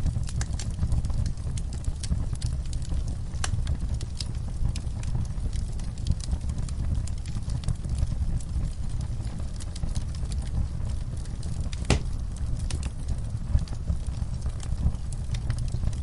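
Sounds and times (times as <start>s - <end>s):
low rumble of flames: 0.0s - 16.0s
wood fire crackling: 0.0s - 16.0s
fire pop: 9.3s - 16.0s.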